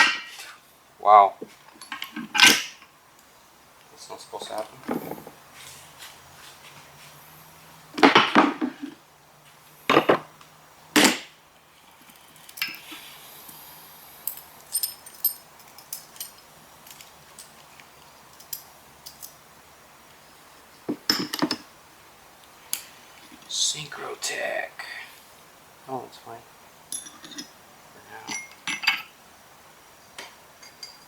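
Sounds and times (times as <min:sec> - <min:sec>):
metal parts and tools clanking: 0:00.0 - 0:00.4, 0:01.7 - 0:02.8, 0:12.1 - 0:13.1, 0:14.2 - 0:17.7, 0:21.0 - 0:21.7, 0:26.9 - 0:29.2, 0:30.6 - 0:31.0.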